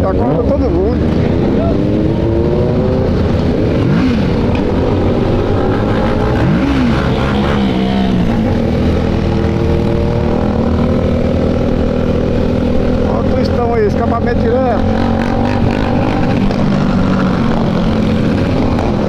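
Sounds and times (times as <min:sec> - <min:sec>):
motorcycle engines droning: 0:00.0 - 0:19.0
motorcycle revving: 0:00.0 - 0:19.0.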